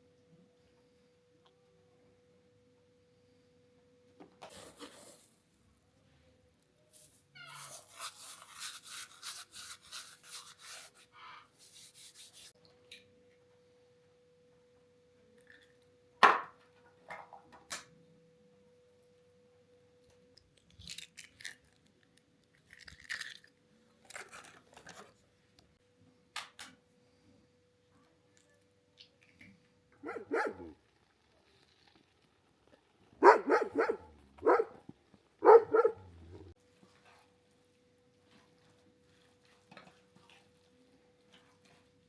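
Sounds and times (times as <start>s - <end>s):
brisk rubbing or scraping strokes: 6.9s - 12.6s
faint steady hum: 12.6s - 20.8s.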